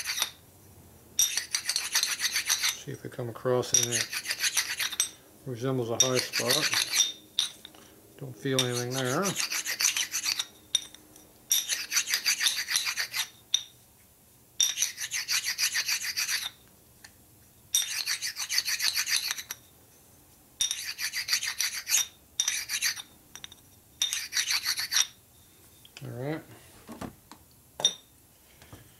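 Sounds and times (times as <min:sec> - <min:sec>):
abrasive stone rubbing on metal: 0:00.0 - 0:00.4, 0:01.2 - 0:02.9, 0:03.7 - 0:05.2, 0:05.9 - 0:07.8, 0:08.5 - 0:10.6, 0:11.5 - 0:13.4, 0:14.6 - 0:16.6, 0:17.8 - 0:19.6, 0:20.6 - 0:23.1, 0:24.0 - 0:25.2.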